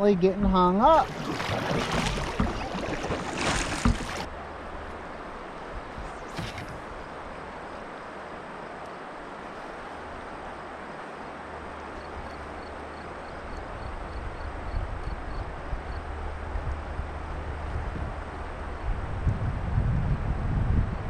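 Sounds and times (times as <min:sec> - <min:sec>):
river rushing: 0:00.0 - 0:13.5
wind buffeting microphone: 0:13.8 - 0:21.0.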